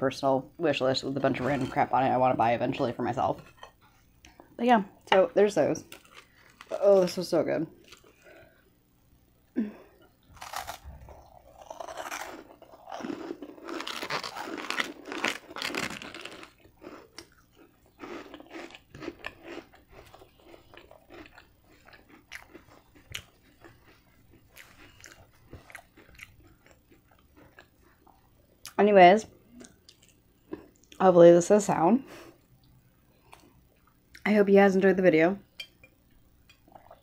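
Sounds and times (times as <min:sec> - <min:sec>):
crunchy bread biting and chewing: 0:05.8 - 0:06.8, 0:10.0 - 0:28.3
chewing clicks and mouth sounds: 0:16.3 - 0:28.8, 0:29.6 - 0:31.0.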